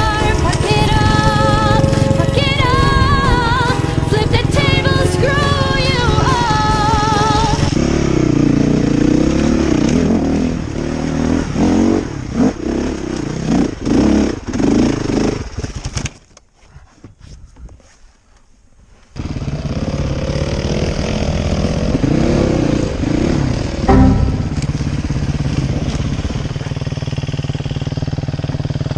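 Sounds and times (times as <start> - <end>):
music: 0.0 - 7.7, 23.9 - 25.4
sharp knock: 23.9 - 25.3.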